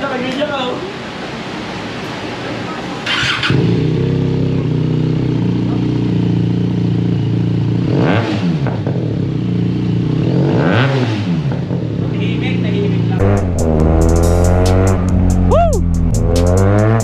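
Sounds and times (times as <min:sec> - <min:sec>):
motorcycle engine idling and revving: 0:02.7 - 0:17.0.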